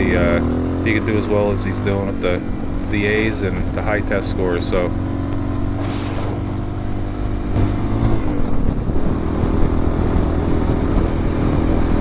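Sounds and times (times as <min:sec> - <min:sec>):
motorcycle engine running: 0:00.0 - 0:12.0
wind rushing over microphone: 0:04.8 - 0:12.0.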